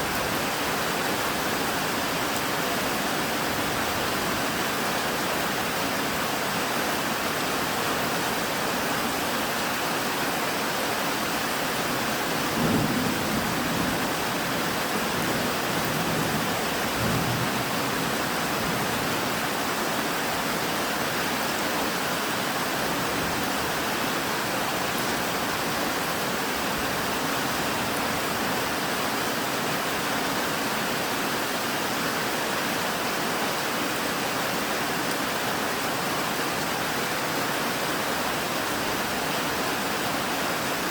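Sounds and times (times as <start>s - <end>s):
steady rain falling: 0.0s - 40.9s
thunder rumbling: 12.5s - 17.8s.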